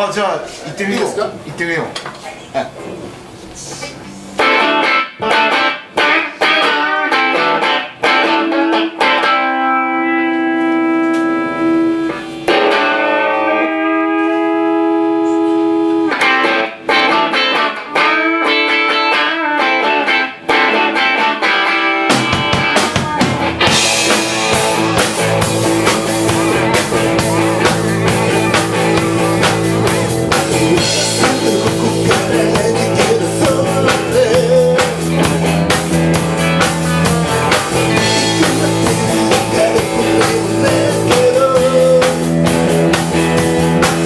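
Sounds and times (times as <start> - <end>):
electric guitar chords: 4.2 - 44.0
rock band playing: 4.3 - 44.0.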